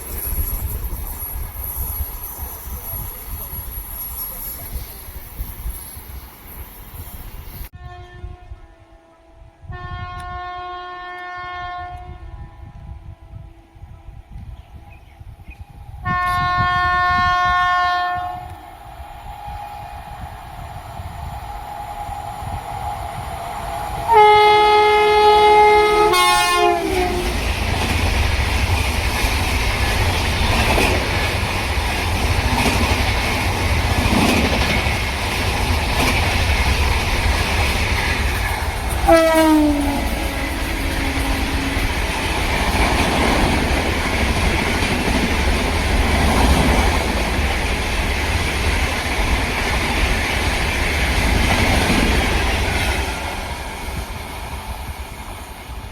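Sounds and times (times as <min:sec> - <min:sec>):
train rumble and wheel clatter: 0:00.0 - 0:55.9
train horn blasts: 0:07.7 - 0:14.5, 0:16.0 - 0:18.8, 0:24.0 - 0:27.5, 0:39.0 - 0:42.2.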